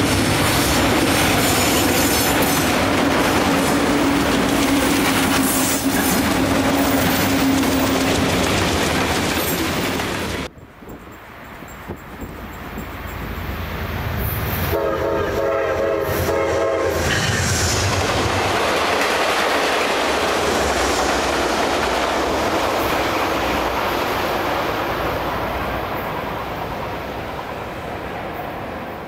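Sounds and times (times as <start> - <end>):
train rumbling and clattering past: 0.0 - 29.0
train horn: 14.6 - 17.8.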